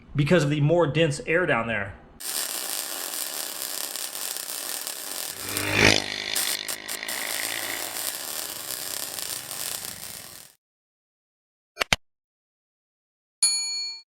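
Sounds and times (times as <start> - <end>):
engine revving: 2.2 - 10.5
minibike engine running: 2.6 - 10.5.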